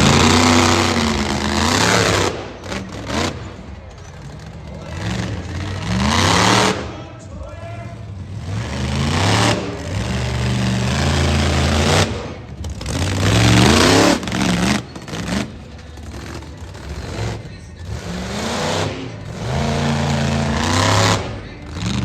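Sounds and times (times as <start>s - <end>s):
monster truck engine revving: 0.0s - 22.0s.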